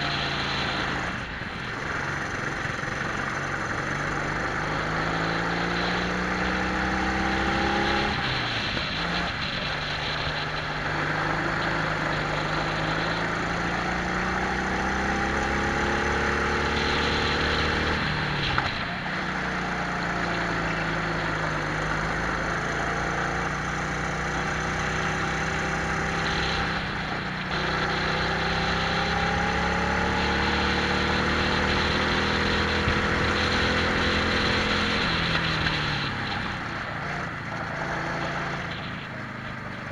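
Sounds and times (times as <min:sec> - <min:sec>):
kart engines revving: 0:00.0 - 0:39.9
wind noise: 0:25.9 - 0:39.9.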